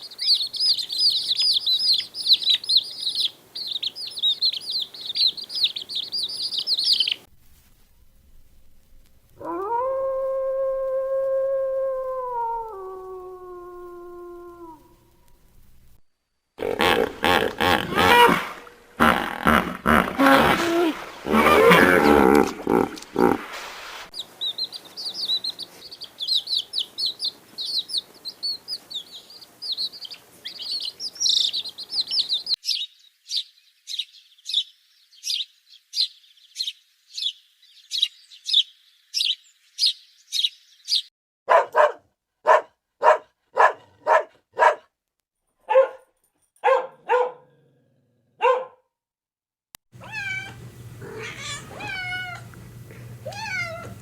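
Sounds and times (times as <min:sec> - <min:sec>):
rapid high chirping: 0:00.0 - 0:07.3
short lower animal calls: 0:16.6 - 0:23.6
cat meowing: 0:50.0 - 0:52.5, 0:53.2 - 0:54.0.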